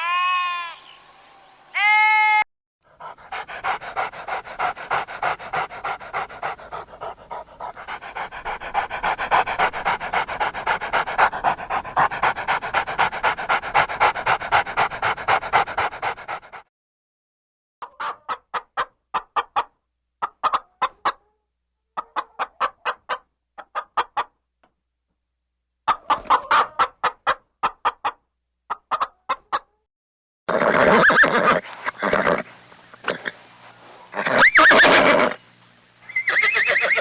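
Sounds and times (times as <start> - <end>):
animal bleating: 0.0 - 0.9, 1.8 - 2.4
dog panting: 2.9 - 16.7.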